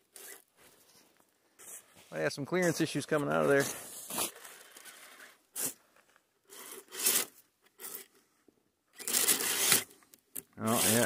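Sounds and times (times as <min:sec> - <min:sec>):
toy car body scraping: 0:03.6 - 0:05.8, 0:06.5 - 0:08.1, 0:09.0 - 0:10.0, 0:10.6 - 0:11.0
tyres churning snow: 0:10.7 - 0:11.0.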